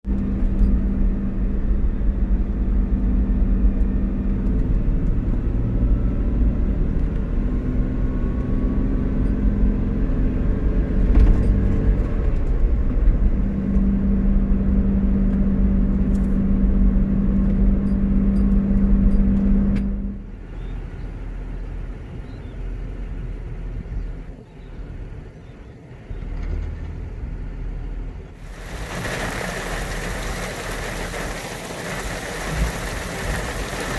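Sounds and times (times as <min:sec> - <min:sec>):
car engine droning: 0:00.1 - 0:33.9
rain hissing: 0:28.4 - 0:33.9.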